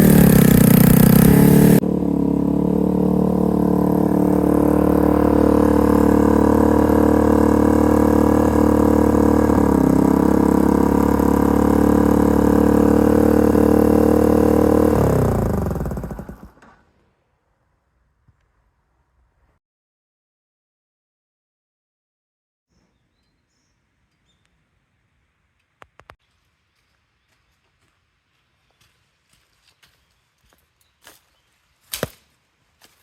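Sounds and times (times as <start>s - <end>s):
motorcycle engine idling: 0.0s - 16.6s
engine winding down: 0.0s - 16.8s.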